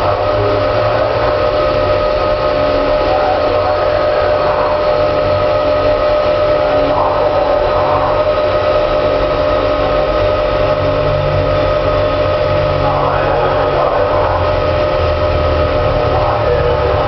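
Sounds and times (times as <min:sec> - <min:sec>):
lathe machine hum and whine: 0:00.0 - 0:17.0.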